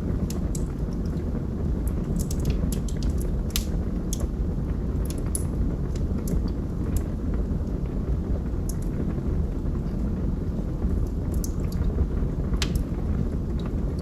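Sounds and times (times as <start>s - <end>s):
log fire crackling: 0.0s - 14.0s
wood popping and snapping: 1.9s - 4.3s, 12.6s - 12.9s.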